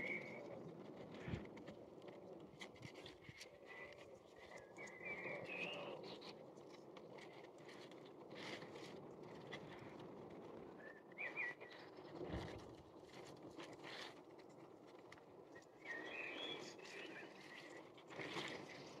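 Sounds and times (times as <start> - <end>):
bird chirps: 15.8 - 17.4.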